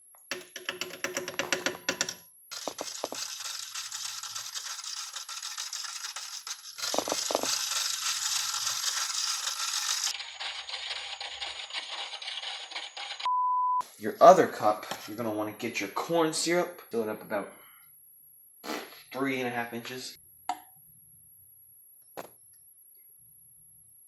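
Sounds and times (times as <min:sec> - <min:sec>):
spoon clinking and scraping in cup: 0:00.3 - 0:12.9.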